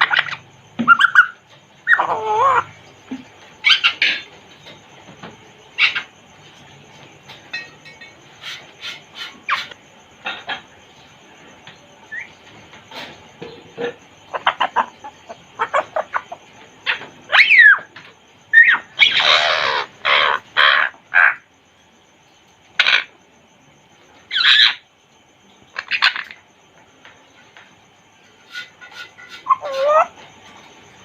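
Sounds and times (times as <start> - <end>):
parrot harsh squawks: 18.6 - 21.4.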